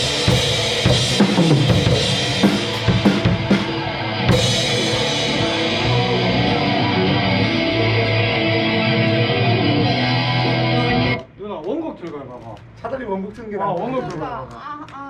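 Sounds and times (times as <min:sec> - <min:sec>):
cymbal crash: 0:00.0 - 0:07.9
distorted electric guitar chords: 0:00.0 - 0:11.2
drum kit: 0:00.0 - 0:11.2.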